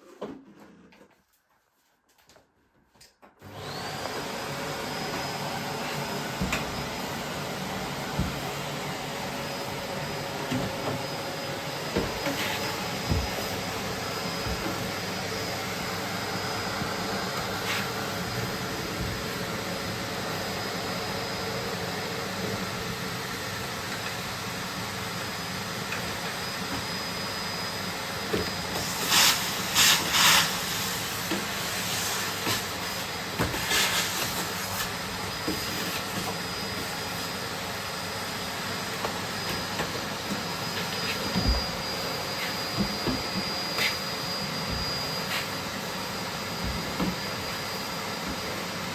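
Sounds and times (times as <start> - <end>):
vacuum cleaner running: 3.4 - 48.9.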